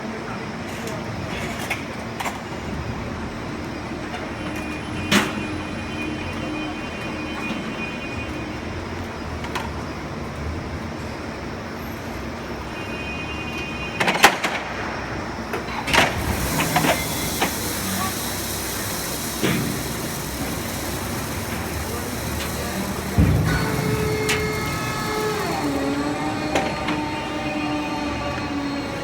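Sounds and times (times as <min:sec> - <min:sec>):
machine mechanical drone: 0:14.8 - 0:29.0
faint steady tones: 0:15.9 - 0:28.8.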